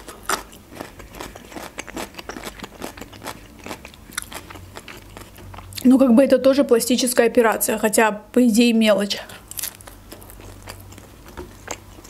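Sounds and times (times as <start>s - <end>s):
chewing with wet mouth clicks: 0.0s - 5.9s, 9.5s - 12.0s.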